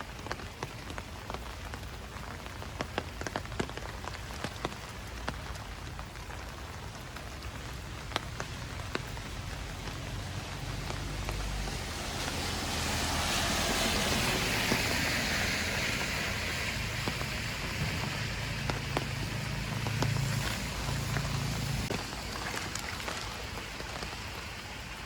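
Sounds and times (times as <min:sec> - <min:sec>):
rain falling: 0:00.0 - 0:25.0
drips landing nearby: 0:16.8 - 0:24.5.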